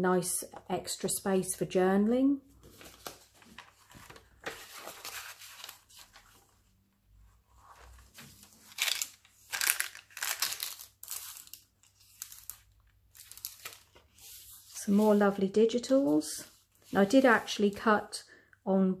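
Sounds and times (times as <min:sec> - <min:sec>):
paper pages rustling: 0:02.6 - 0:06.7, 0:07.5 - 0:15.4.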